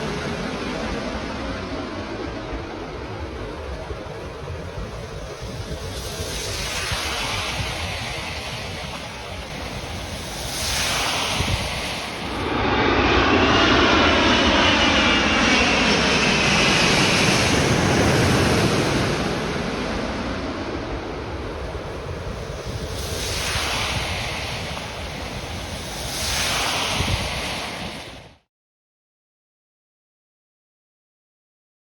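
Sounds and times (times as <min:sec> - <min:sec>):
jet airliner passing overhead: 0:00.0 - 0:28.5.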